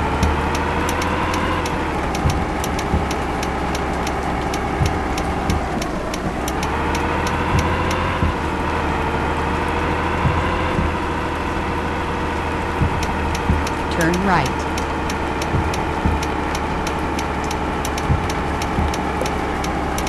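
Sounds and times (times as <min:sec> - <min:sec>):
light fast ticking: 0:00.0 - 0:08.9, 0:10.2 - 0:20.0
vehicle engine running: 0:00.0 - 0:20.0
dull thumps from road: 0:07.4 - 0:08.5, 0:10.2 - 0:11.1.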